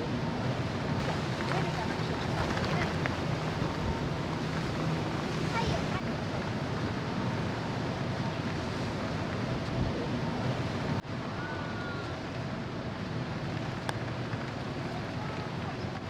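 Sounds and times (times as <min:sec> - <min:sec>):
sea water rushing: 0:00.7 - 0:09.6.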